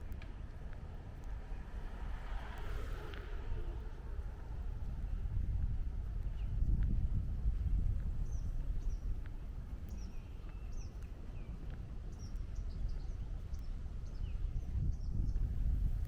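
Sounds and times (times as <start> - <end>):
steady low rumble: 0.0 - 16.0
small birds chirping: 8.2 - 15.5.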